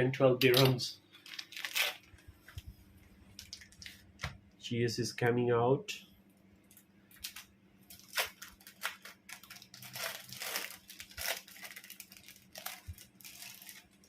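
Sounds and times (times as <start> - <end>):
plastic packaging crinkling and tearing: 0.4 - 2.2, 3.3 - 4.2, 6.7 - 14.0.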